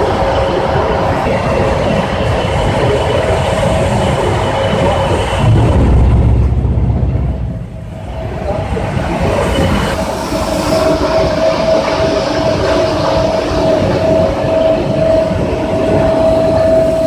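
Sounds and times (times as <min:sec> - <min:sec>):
steady hum: 0:05.2 - 0:11.0
hiss: 0:09.4 - 0:11.4, 0:16.3 - 0:17.0.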